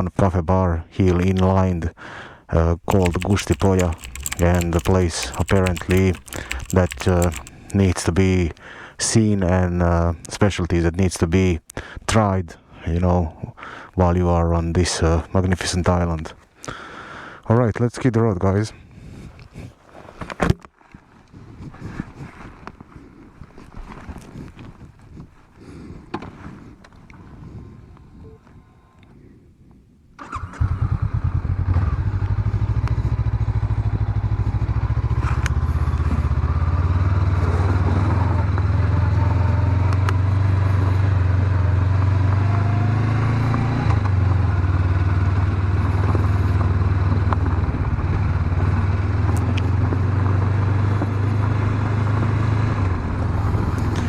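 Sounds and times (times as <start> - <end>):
motorcycle engine starting and running: 2.9 - 7.6.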